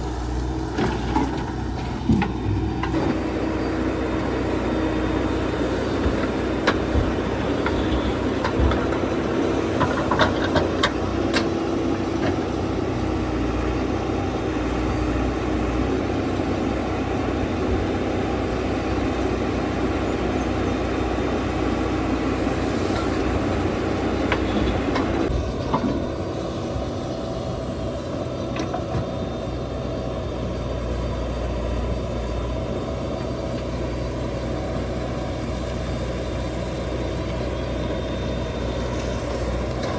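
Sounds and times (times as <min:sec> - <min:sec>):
diesel engine running under load: 0:00.0 - 0:39.9
steady engine tone: 0:21.8 - 0:39.9.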